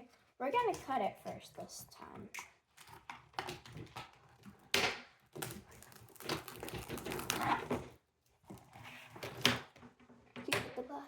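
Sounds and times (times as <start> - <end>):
plastic wrap crinkling: 5.3 - 7.9.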